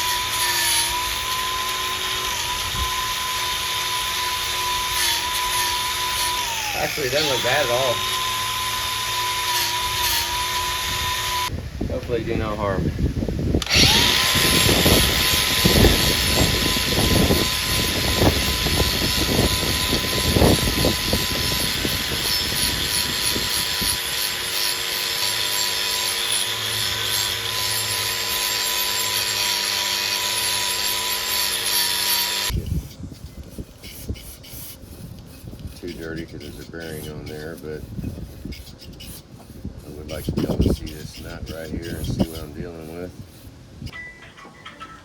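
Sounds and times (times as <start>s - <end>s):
power tool whining: 0.0s - 11.5s, 13.6s - 43.9s
grinding and scraping: 0.0s - 12.8s, 13.6s - 43.6s.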